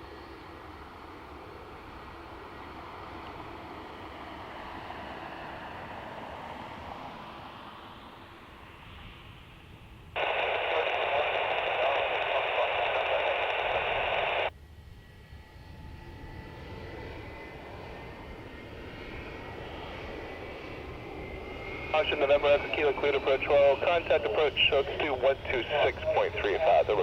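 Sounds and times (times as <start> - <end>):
faint jet engine whine: 0.0 - 27.0
radio receiver hissing: 10.2 - 14.5.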